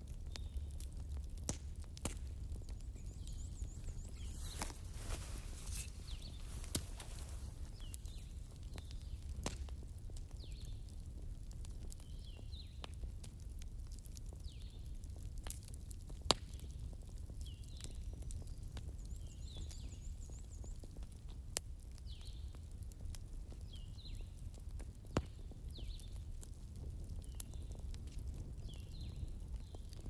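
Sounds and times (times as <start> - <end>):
campfire crackling: 0.0 - 30.0
fire popping: 0.0 - 30.0
bird chirping: 2.6 - 9.1.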